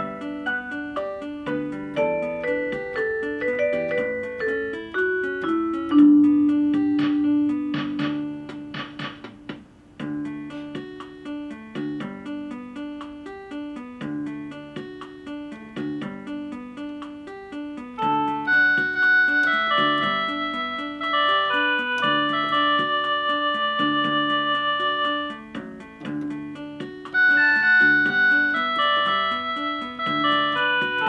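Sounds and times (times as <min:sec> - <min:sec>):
electronic keyboard piano melody: 0:00.0 - 0:31.0
brushy percussion strikes: 0:06.8 - 0:09.7.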